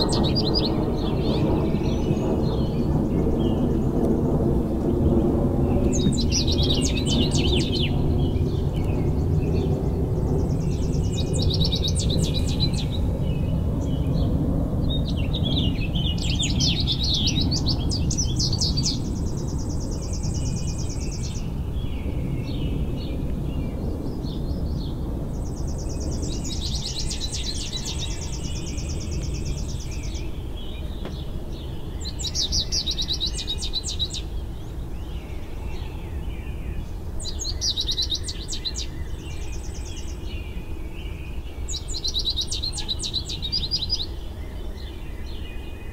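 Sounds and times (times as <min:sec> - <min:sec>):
songbird singing: 0:00.0 - 0:45.9.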